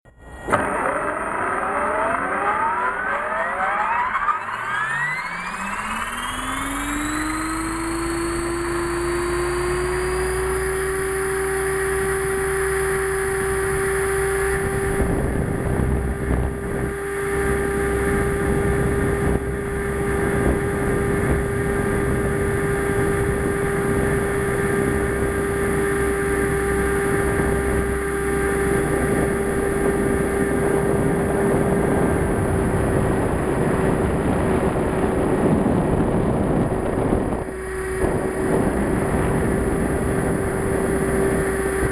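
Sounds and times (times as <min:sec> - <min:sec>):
rushing noise: 0:00.1 - 0:09.2
helicopter motor and rotor whine: 0:00.1 - 0:41.9.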